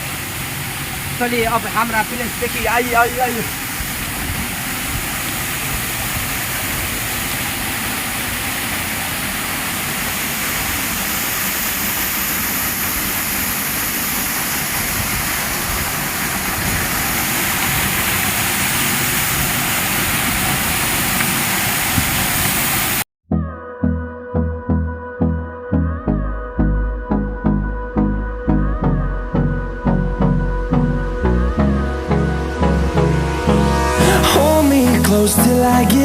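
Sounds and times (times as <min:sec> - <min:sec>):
steady broadband rushing noise: 0:00.0 - 0:23.0.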